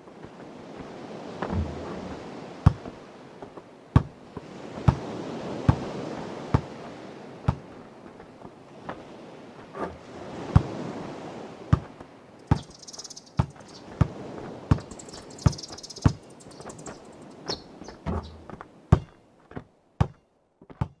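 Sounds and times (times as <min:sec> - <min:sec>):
sea waves: 0:00.0 - 0:18.9
birds chirping: 0:12.4 - 0:18.5
basketball bouncing on hard ground: 0:12.5 - 0:12.8, 0:13.4 - 0:16.2, 0:20.0 - 0:21.0.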